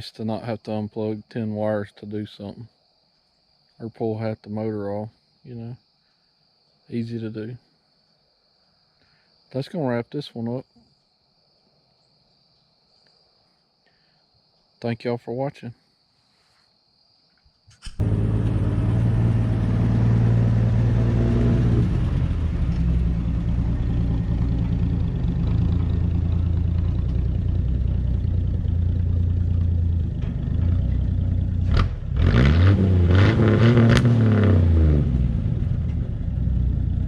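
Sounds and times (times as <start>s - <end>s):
truck engine running: 18.0s - 33.2s, 34.3s - 37.0s.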